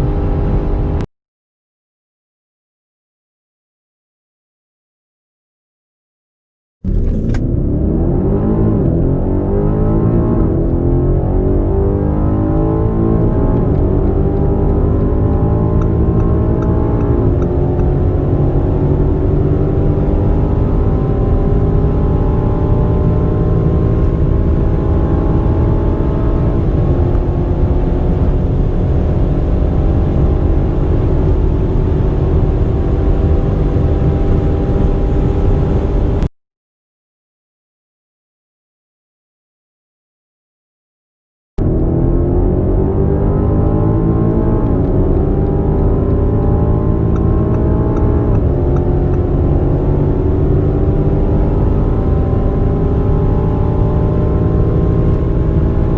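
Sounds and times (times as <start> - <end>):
engine accelerating at full throttle: 0.0 - 1.1, 6.9 - 36.3, 41.6 - 55.9.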